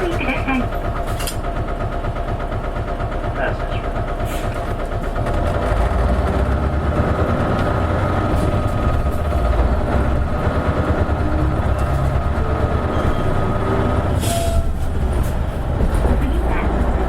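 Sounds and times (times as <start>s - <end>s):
bus diesel engine rumbling: 0.0s - 17.0s.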